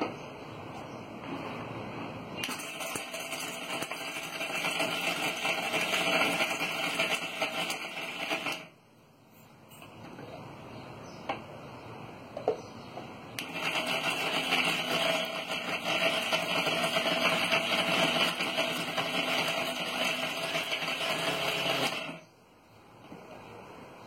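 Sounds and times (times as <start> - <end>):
electric mixer grinder grinding: 2.4 - 8.7, 13.4 - 22.3.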